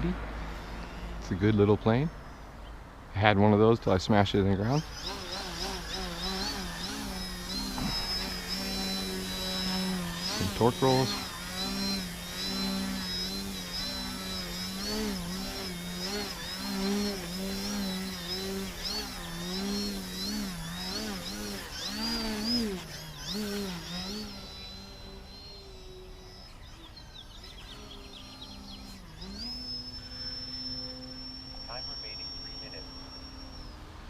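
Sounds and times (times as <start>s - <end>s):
model plane motor buzzing: 0.0s - 2.6s, 4.4s - 34.0s.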